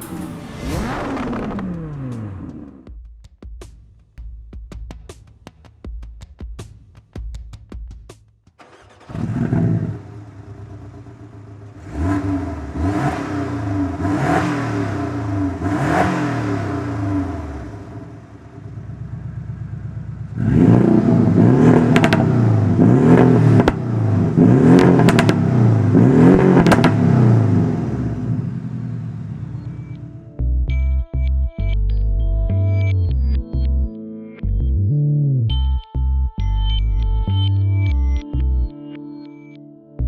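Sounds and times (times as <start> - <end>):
car engine revving: 0.0 - 2.9, 8.6 - 30.2
exhaust crackles: 0.0 - 2.9, 8.6 - 30.2.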